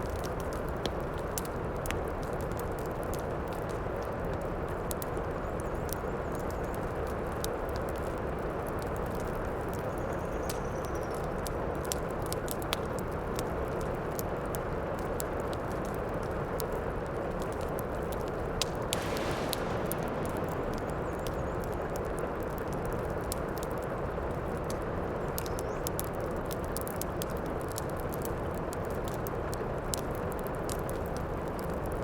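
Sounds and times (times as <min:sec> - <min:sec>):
wood fire crackling: 0:00.0 - 0:32.0
heavy rain hissing: 0:18.9 - 0:23.2.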